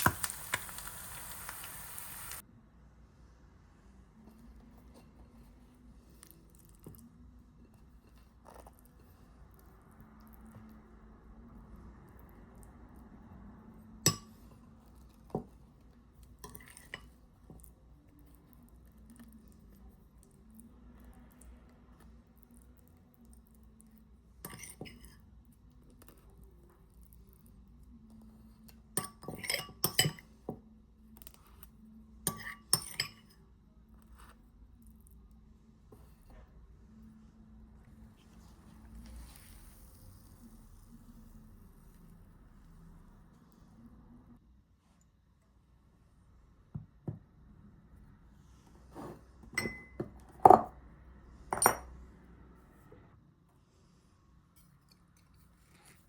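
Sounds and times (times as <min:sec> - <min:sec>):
glassware and dishes clinking: 0:49.5 - 0:50.8, 0:51.5 - 0:51.9.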